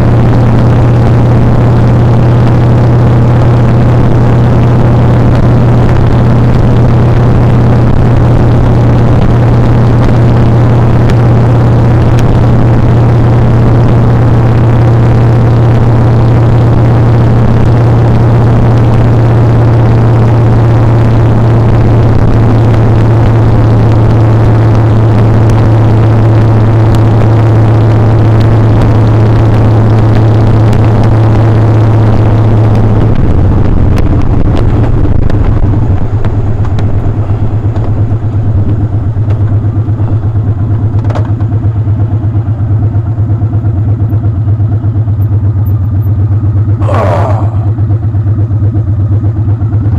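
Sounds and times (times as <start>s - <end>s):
steady rushing noise: 0.0s - 41.0s, 46.8s - 47.8s
motorcycle engine running: 0.0s - 49.9s.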